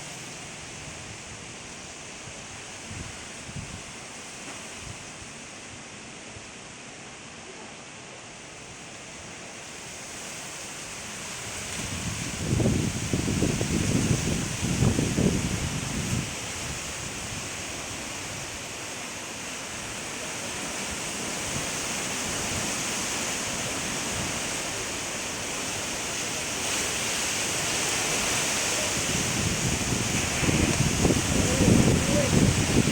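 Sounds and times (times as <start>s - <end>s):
strong wind rushing: 11.8s - 17.5s, 28.2s - 32.9s.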